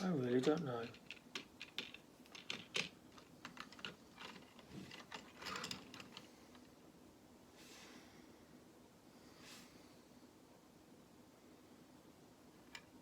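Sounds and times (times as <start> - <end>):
plastic lego pieces clicking: 0.4 - 6.3.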